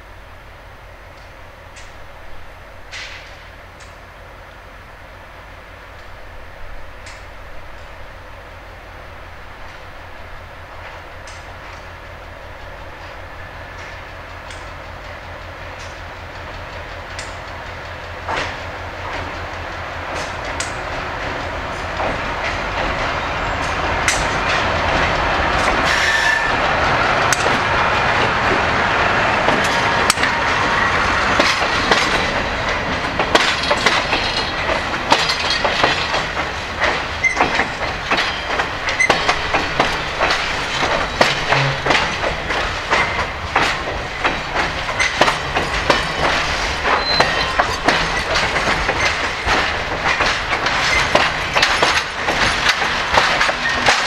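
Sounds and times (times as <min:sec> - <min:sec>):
diesel locomotive engine rumble: 0:00.0 - 0:54.0
train wheels clattering over rail joints: 0:02.8 - 0:04.0, 0:10.7 - 0:54.0.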